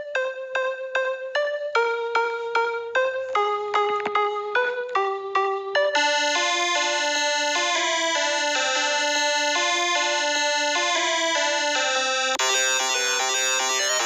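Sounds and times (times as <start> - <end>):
synthesized keyboard melody: 0.0 - 14.0.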